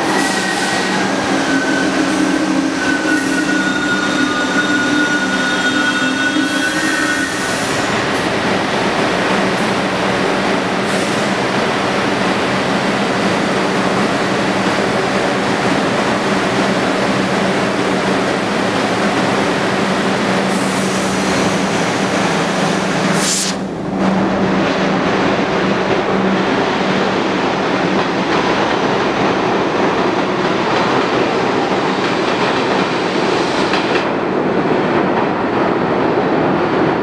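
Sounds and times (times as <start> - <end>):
subway train wheels rumbling on rails: 0.0 - 37.0
brief hisses: 23.2 - 23.7.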